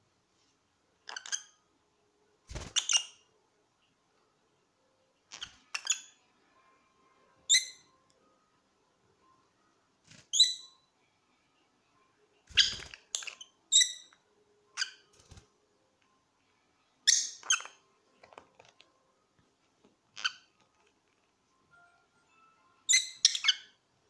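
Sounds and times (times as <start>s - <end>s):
parrots squawking and chirping: 5.3s - 6.2s, 17.1s - 17.8s, 20.2s - 20.7s, 22.9s - 23.8s.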